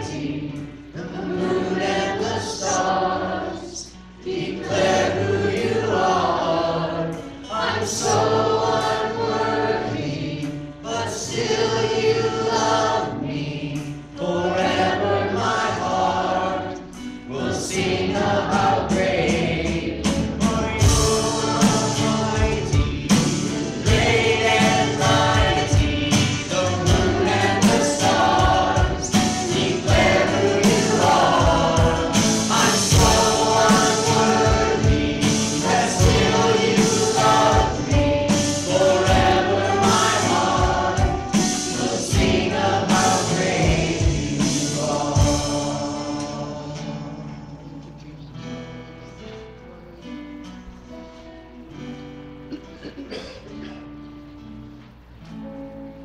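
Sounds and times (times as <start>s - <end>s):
choir singing: 0.0s - 49.4s
instrumental accompaniment: 0.0s - 56.0s
steady drum beat: 17.8s - 46.6s.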